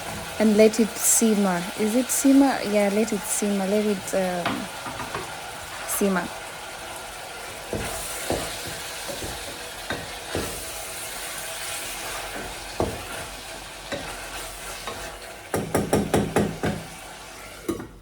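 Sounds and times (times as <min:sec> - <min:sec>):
vegetables sizzling in a pot: 0:00.0 - 0:18.0
utensil knocking against pot: 0:07.7 - 0:10.7, 0:12.4 - 0:13.2, 0:15.5 - 0:16.9.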